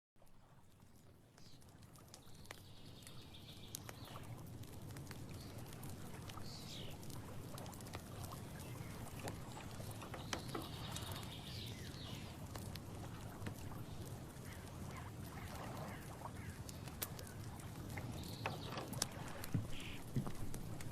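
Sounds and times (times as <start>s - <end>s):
faint ticks and patters: 0.2s - 20.9s
short falling bird calls: 19.6s - 20.1s.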